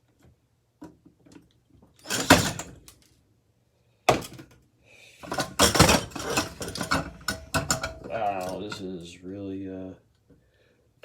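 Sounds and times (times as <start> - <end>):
metal knocks and clatter: 2.1 - 2.9, 5.3 - 8.8.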